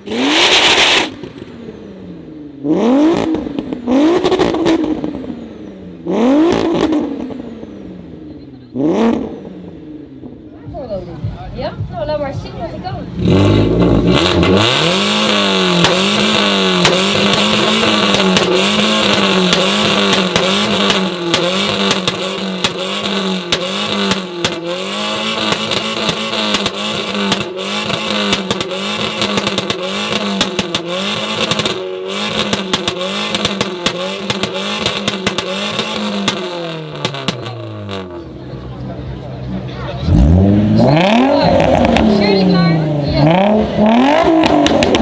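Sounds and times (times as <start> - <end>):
car engine bouncing on rev limiter: 0.0 - 5.4, 6.0 - 9.8, 10.7 - 45.0
exhaust pops and bangs: 10.7 - 38.4, 40.1 - 45.0.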